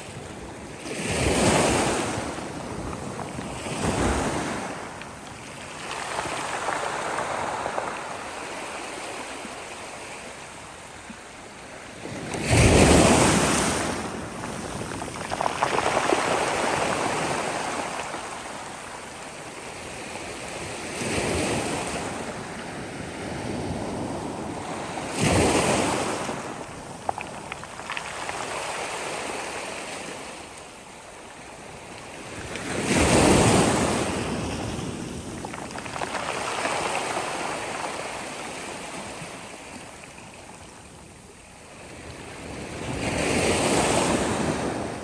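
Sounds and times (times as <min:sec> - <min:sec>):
sea waves breaking on shore: 0:00.0 - 0:11.1, 0:11.8 - 0:30.6, 0:32.1 - 0:40.3.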